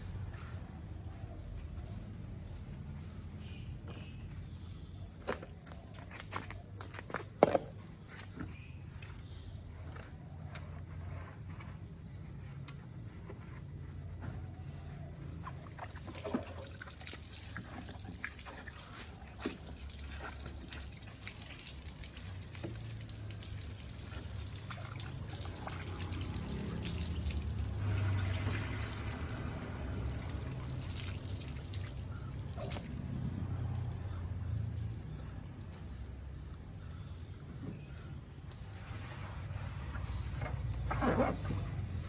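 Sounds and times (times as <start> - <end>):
water dripping and trickling: 15.4 - 35.8
small splashes and taps: 15.5 - 33.3.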